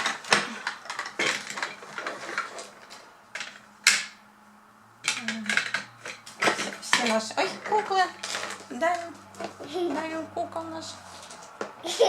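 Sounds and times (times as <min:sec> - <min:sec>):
plastic toy pieces clattering: 0:00.0 - 0:04.1, 0:05.1 - 0:09.0.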